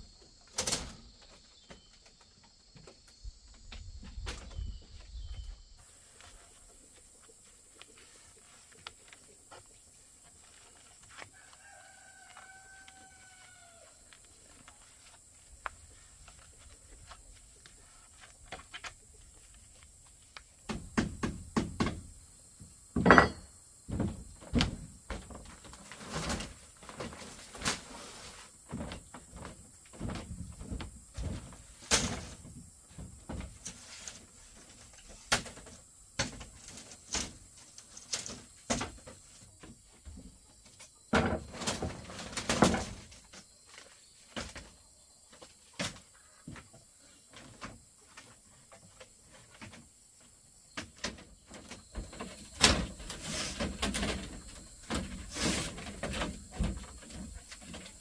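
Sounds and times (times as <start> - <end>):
bamboo knocking and thudding: 20.4 - 22.2, 23.0 - 27.9, 28.7 - 37.4.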